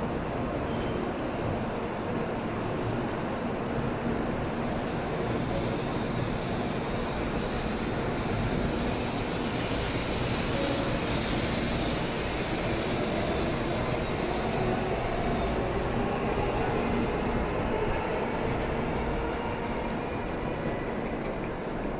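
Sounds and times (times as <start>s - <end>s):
train pulling away: 4.3s - 21.9s.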